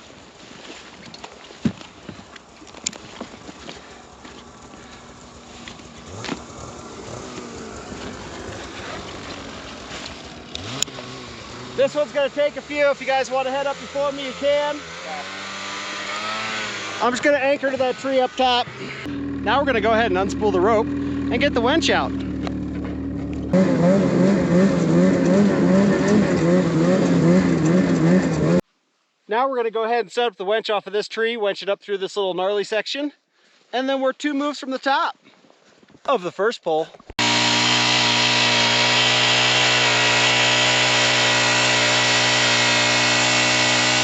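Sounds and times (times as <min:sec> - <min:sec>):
snowmobile engine running: 0:03.1 - 0:28.6, 0:37.2 - 0:44.0.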